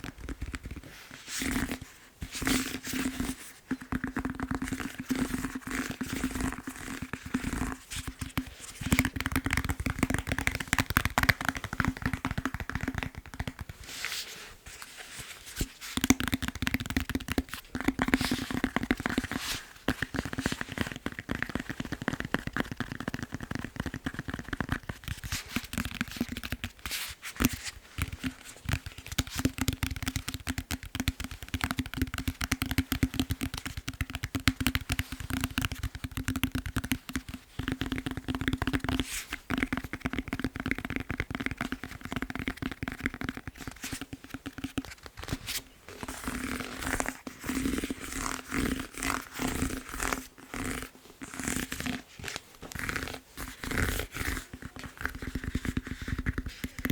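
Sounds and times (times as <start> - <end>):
scratching on foam roller: 0.0 - 56.9
tapping on foam roller: 3.7 - 13.8, 16.0 - 25.0, 28.0 - 45.0.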